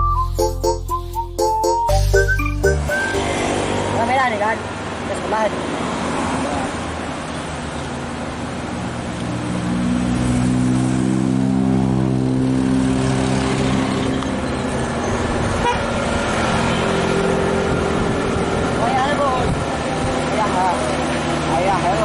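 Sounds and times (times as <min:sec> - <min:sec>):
diesel truck engine labouring: 0:12.0 - 0:22.0.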